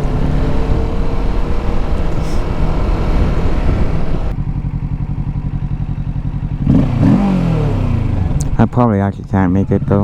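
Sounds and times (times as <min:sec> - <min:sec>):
wind noise: 0:00.0 - 0:04.4
motorcycle engine running: 0:00.0 - 0:10.0.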